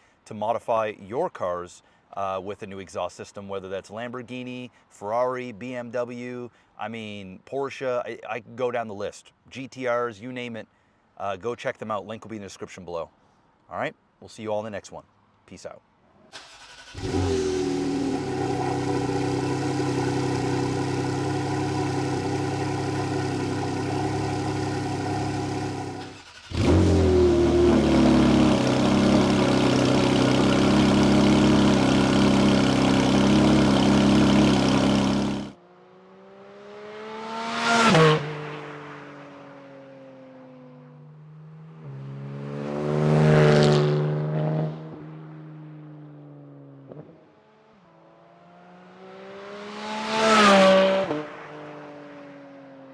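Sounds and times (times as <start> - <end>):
sports car engine starting: 16.3 - 35.6
car engine fast idle: 16.4 - 35.5
car engine revving: 16.4 - 39.0, 41.3 - 45.2, 48.4 - 51.8.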